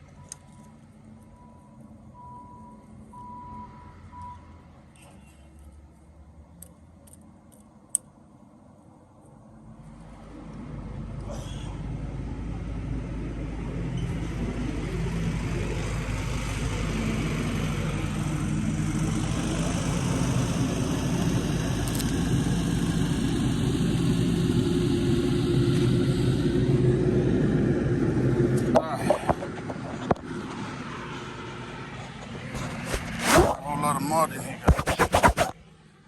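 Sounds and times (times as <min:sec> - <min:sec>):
engine running steadily: 0:09.5 - 0:36.0.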